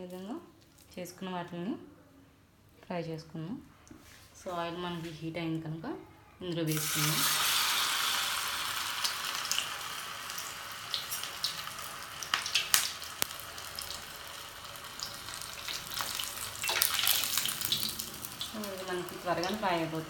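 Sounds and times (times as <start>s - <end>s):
oil crackling and popping: 6.7s - 19.6s
food sizzling in hot oil: 6.7s - 20.0s.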